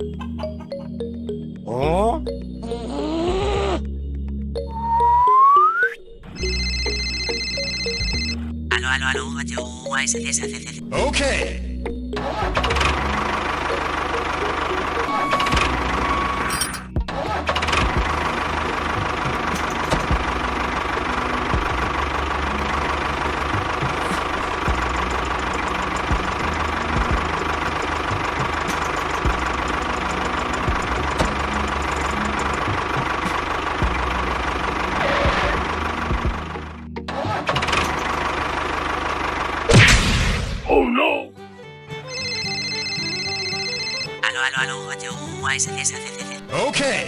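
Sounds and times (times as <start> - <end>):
small engine running: 12.4 - 39.7.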